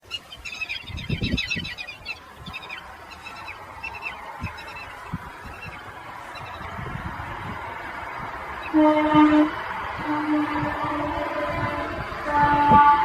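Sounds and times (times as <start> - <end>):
birds chattering: 0.0 - 6.8.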